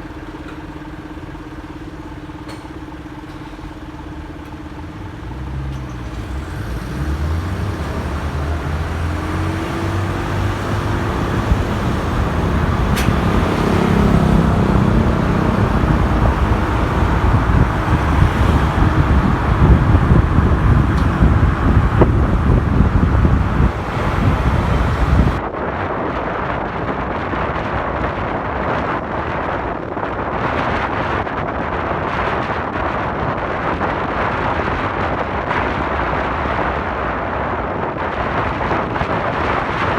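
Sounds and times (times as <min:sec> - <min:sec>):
wind and road noise: 0:00.0 - 0:39.9
motorcycle engine accelerating: 0:01.4 - 0:25.4.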